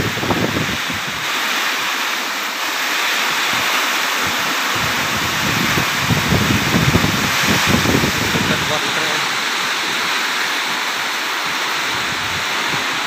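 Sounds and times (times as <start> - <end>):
wind gusts buffeting microphone: 0.0 - 1.4, 3.3 - 10.4, 11.4 - 13.0
heavy rain pouring: 0.0 - 13.0.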